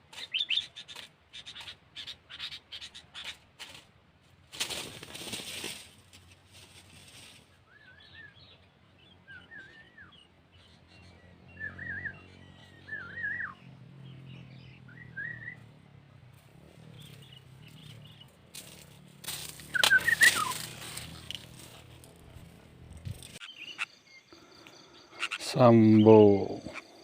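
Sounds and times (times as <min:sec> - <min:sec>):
bulbul whistled phrases: 0:19.7 - 0:20.6.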